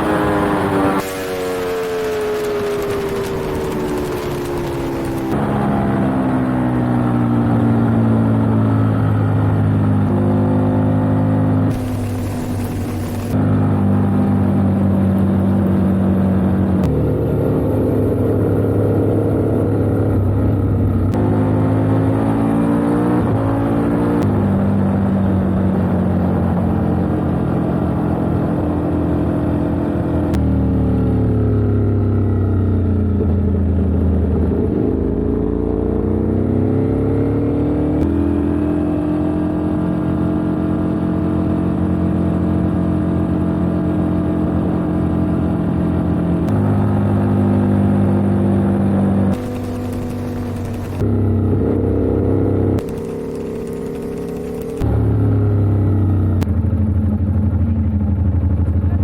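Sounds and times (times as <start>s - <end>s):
superbike engine at high revs: 0.0s - 14.4s, 21.2s - 32.5s, 49.3s - 55.8s.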